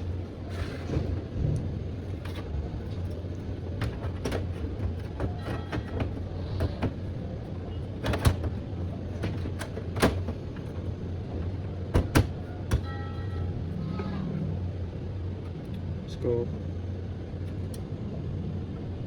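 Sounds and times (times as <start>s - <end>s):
steady low hum: 0.0s - 19.0s
metal panel clicks and knocks: 3.7s - 7.2s, 8.0s - 12.9s.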